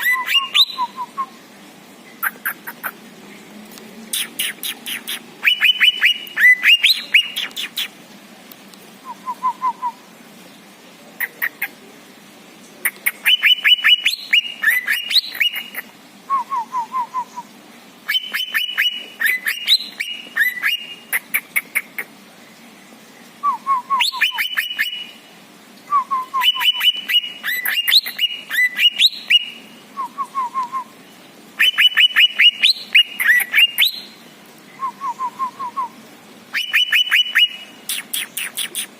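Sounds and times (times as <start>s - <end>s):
songbird trills and whistles: 0.0s - 1.3s, 4.2s - 7.9s, 13.2s - 17.5s, 18.1s - 21.0s, 23.4s - 25.2s, 25.9s - 30.9s, 31.6s - 35.9s, 36.6s - 38.9s.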